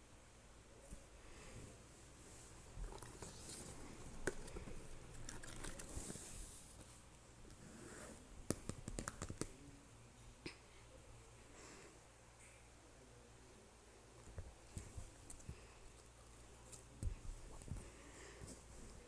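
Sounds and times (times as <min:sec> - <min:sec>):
rustling and crinkling: 0:00.8 - 0:09.2, 0:14.2 - 0:19.0.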